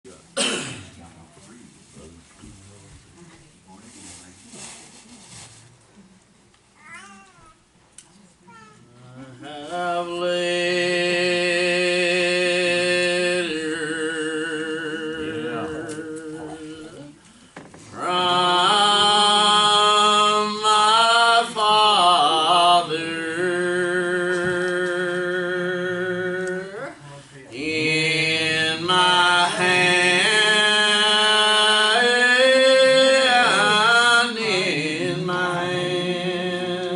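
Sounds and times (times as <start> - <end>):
slow church singing: 9.0 - 36.9.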